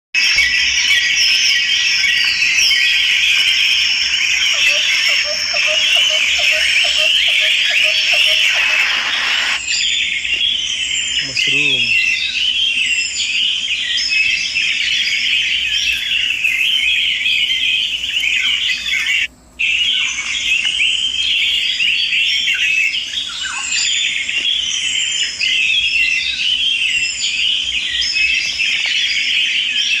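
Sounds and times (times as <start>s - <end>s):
small birds chirping and squawking: 0.2s - 30.0s.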